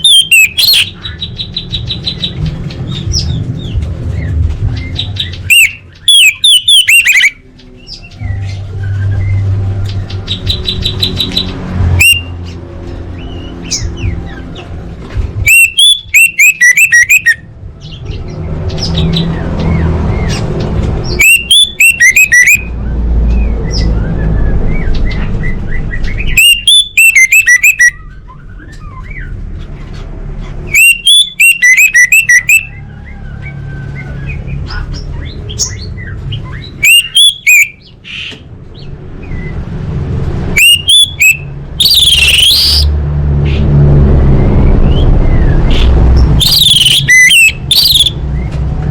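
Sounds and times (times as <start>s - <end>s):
thrush calling rapid high notes: 0.0s - 1.2s, 5.4s - 7.4s, 15.5s - 17.5s, 21.0s - 22.7s, 26.3s - 28.2s, 30.7s - 32.7s, 40.5s - 42.9s, 45.7s - 48.2s.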